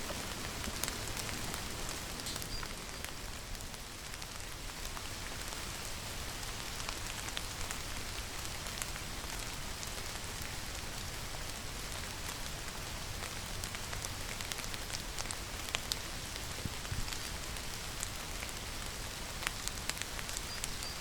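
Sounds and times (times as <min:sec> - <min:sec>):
raindrops ticking sharply: 0:00.0 - 0:04.2
steady rain falling: 0:00.0 - 0:21.0.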